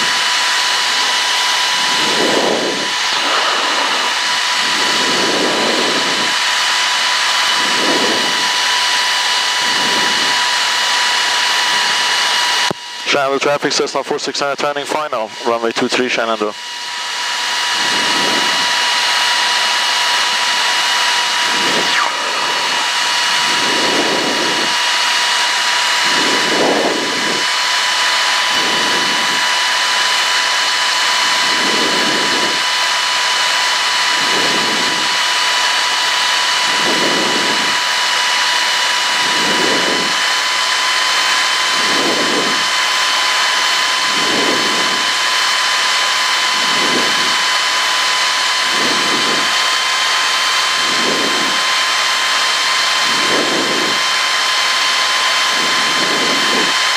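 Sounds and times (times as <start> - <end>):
low pulsing hum: 0.0 - 8.7, 20.2 - 29.5
propeller plane engine drone: 0.0 - 56.9
steady high whine: 0.0 - 56.9.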